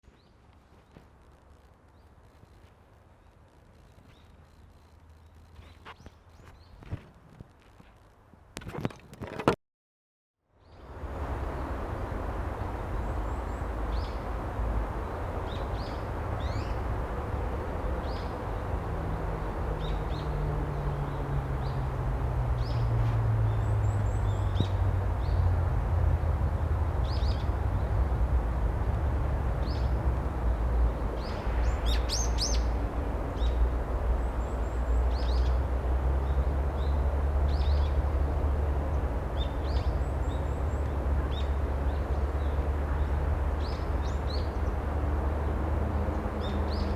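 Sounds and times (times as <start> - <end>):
songbirds chirping: 10.6 - 46.9
low background rumble: 11.0 - 46.9.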